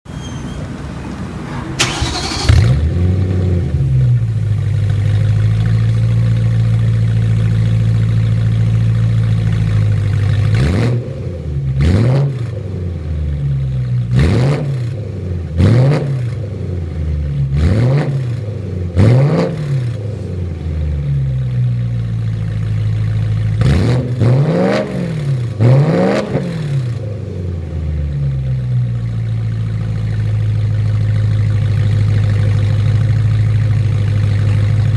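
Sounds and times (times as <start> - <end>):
car engine starting and idling: 0.0 - 10.6, 25.2 - 34.9
car engine revving: 0.1 - 4.3, 23.6 - 27.4.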